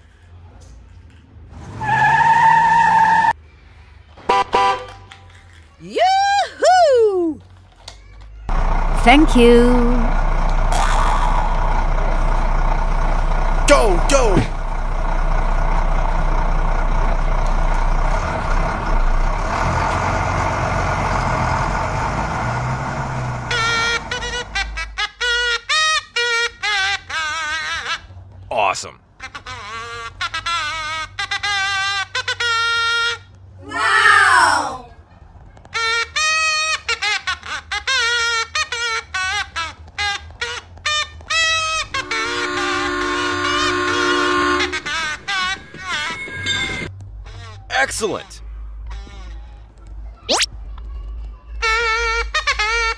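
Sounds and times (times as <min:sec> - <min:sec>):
truck engine running: 0:08.5 - 0:24.8, 0:39.6 - 0:47.2
squeaky creature calls: 0:10.7 - 0:11.6.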